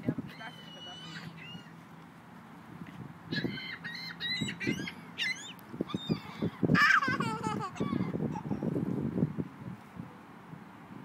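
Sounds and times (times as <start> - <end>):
bird calling: 0.2 - 1.8, 3.3 - 8.7.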